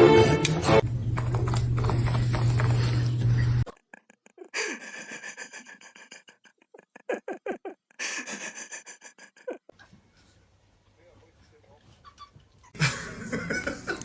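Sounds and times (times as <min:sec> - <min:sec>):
loud music: 0:00.0 - 0:00.8.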